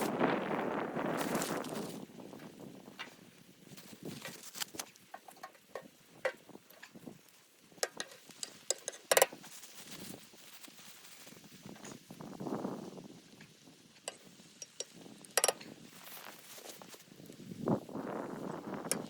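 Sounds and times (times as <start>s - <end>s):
small clicks and crackles: 0.0s - 19.0s.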